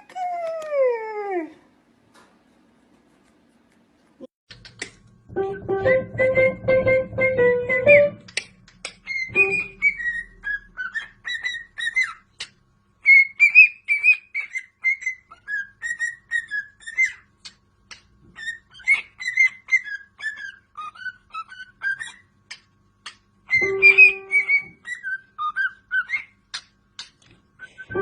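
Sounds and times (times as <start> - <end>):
parrot clicks: 4.5 - 5.1, 8.3 - 9.1
parrot whistling and chirping: 8.9 - 17.3, 17.9 - 28.0.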